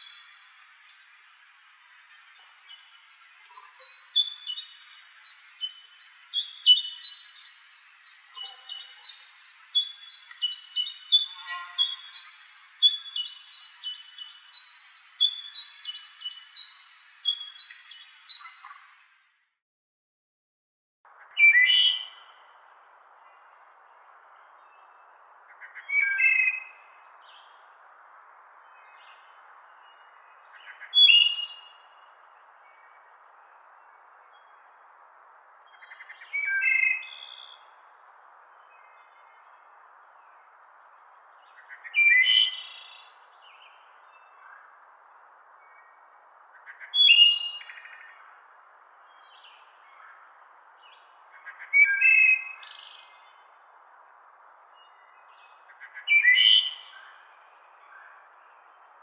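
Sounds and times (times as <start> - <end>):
high whistled birdsong: 0.0 - 19.1, 21.2 - 27.8, 28.4 - 34.8, 35.6 - 44.8, 45.5 - 53.7, 54.5 - 59.0
songbird singing: 0.0 - 19.3, 21.1 - 59.0.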